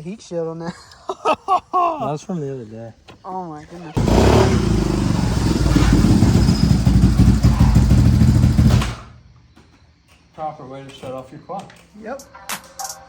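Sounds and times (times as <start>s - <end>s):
quad engine running: 4.0s - 9.0s.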